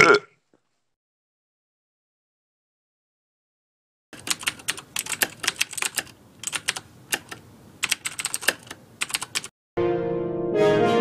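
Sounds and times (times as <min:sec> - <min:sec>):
typing on computer keyboard: 0:04.2 - 0:09.5.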